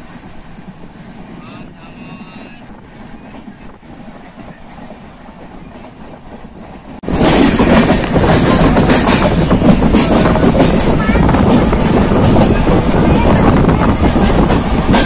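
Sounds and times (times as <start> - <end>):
train rumble and rush: 0.0 - 15.0
wheels clacking over rail joints: 3.1 - 15.0.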